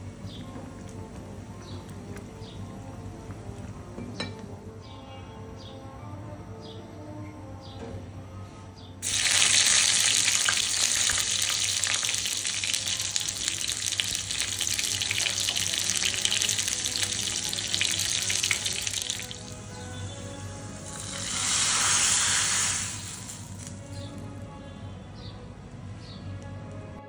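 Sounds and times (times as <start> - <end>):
soft background music: 0.0 - 27.0
chillies sizzling in hot oil: 9.0 - 24.1.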